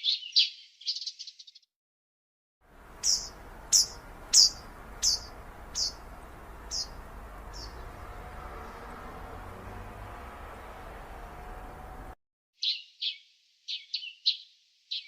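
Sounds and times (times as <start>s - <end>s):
bird calling high notes: 3.0s - 8.9s.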